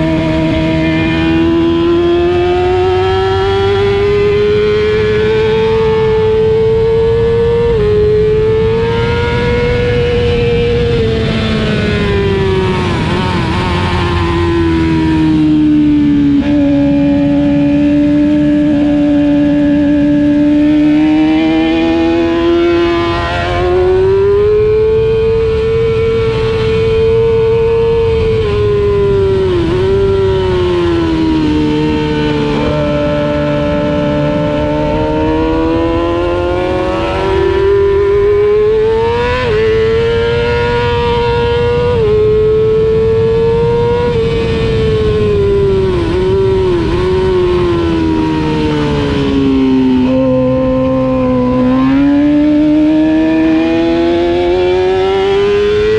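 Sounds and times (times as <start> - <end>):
racing motorcycle engine: 0.0 - 55.9.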